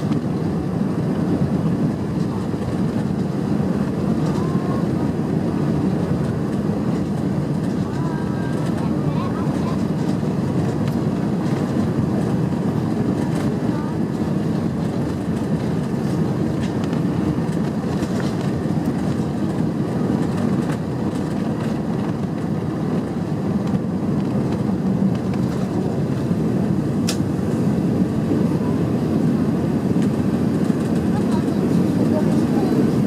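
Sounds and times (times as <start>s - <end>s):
aircraft cabin rumble: 0.0s - 33.0s
sharp click: 27.0s - 27.2s.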